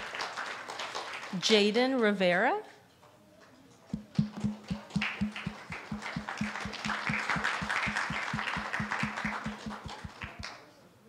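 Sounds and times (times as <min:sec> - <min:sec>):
audience applauding: 0:00.0 - 0:01.4, 0:04.0 - 0:10.5
fast even beat: 0:03.9 - 0:10.5.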